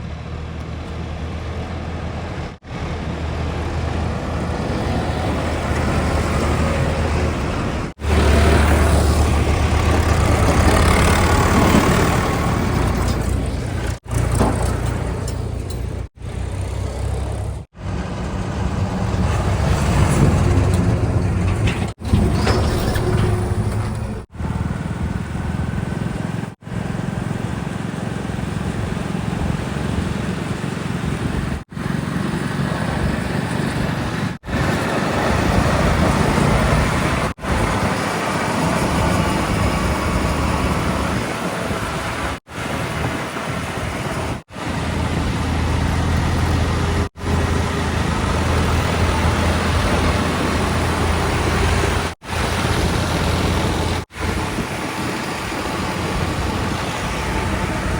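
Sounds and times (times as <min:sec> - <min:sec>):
heavy diesel engines running: 0:00.0 - 0:57.9.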